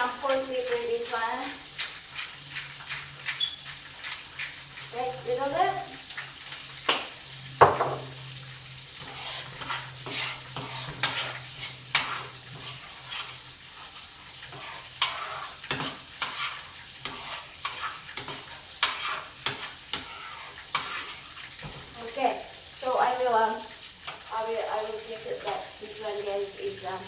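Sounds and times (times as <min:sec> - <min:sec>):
utensil scraping food in pan: 0:00.0 - 0:05.3, 0:07.7 - 0:22.0
food sizzling in frying pan: 0:00.0 - 0:27.0.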